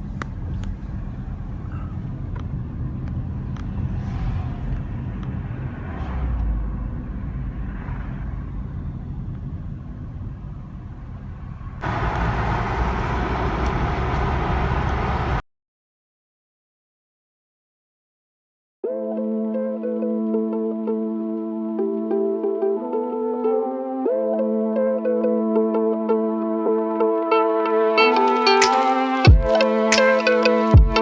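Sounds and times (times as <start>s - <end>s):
car road noise rumble: 0.0s - 15.4s
loud rushing noise: 3.3s - 8.6s, 11.8s - 15.4s, 28.3s - 30.5s.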